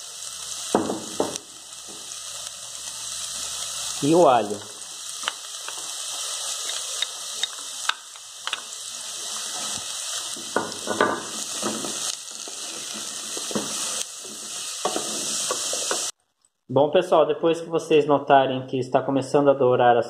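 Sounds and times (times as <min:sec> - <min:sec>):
onion and garlic sizzling in oil: 0:00.0 - 0:16.2
wooden spoon scraping a pot: 0:11.2 - 0:16.1.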